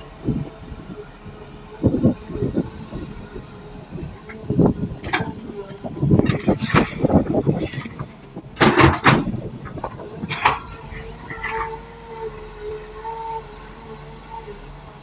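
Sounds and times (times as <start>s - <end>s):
heavy machine engine humming: 0.0s - 15.0s.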